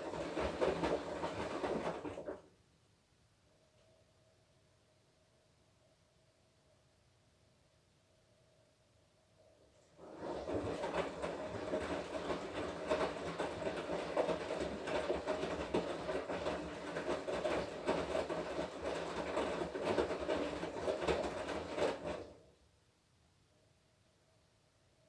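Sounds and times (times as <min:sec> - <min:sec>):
laundry tumbling and clattering: 0:00.0 - 0:02.4, 0:10.0 - 0:22.4
washing machine drum turning: 0:00.0 - 0:02.4, 0:10.0 - 0:22.4.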